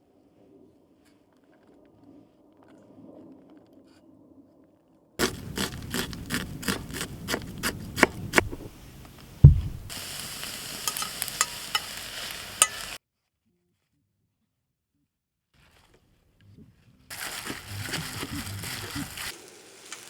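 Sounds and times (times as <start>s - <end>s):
food sizzling and crackling: 5.2s - 13.0s, 17.1s - 20.0s
low thump: 8.1s - 10.0s
utensil clicking against pan: 10.8s - 13.0s.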